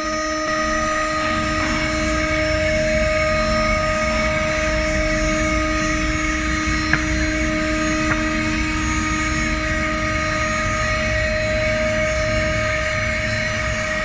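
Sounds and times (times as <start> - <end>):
router spindle whining: 0.0 - 14.0.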